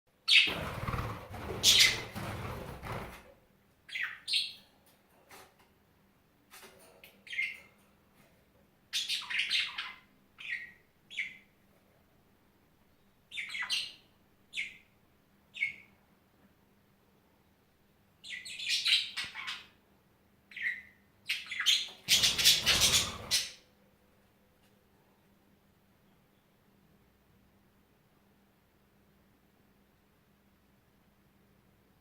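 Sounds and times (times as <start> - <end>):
birds chirping: 0.3 - 3.2, 3.9 - 4.6, 7.2 - 7.7, 8.9 - 11.5, 20.5 - 23.6
loud rustling: 0.5 - 3.3.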